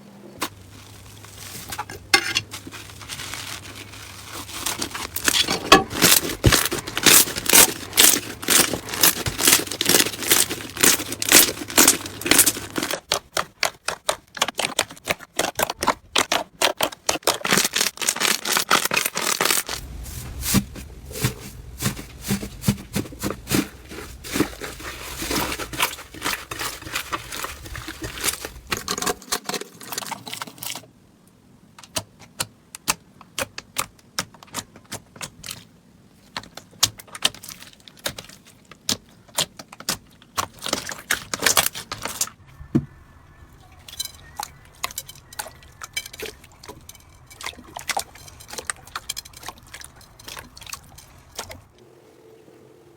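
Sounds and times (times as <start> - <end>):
slime clicking and crackling: 2.9 - 20.0, 36.3 - 42.4.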